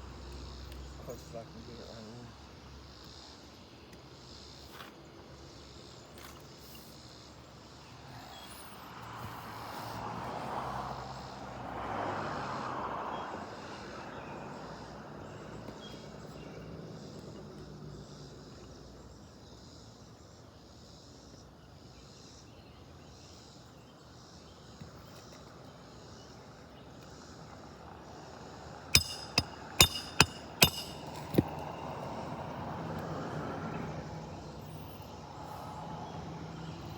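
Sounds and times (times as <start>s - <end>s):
hammer knocking on roof shingles: 29.0s - 31.6s.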